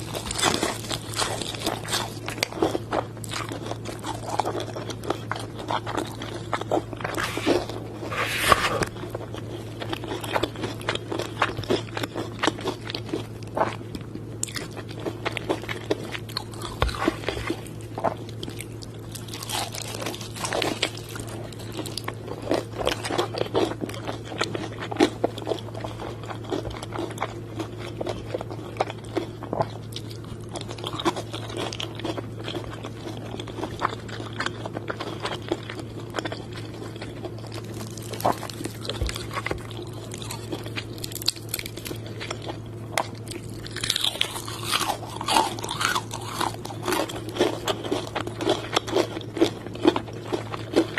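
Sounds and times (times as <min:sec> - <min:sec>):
low hum: 0:00.0 - 0:11.6
crunching crispy chicken: 0:00.0 - 0:50.9.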